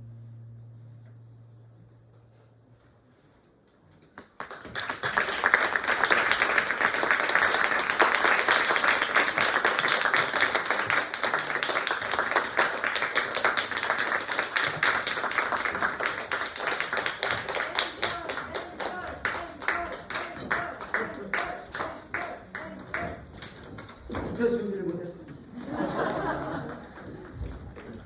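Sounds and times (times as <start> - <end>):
audience applauding: 4.2 - 23.5, 25.6 - 28.0.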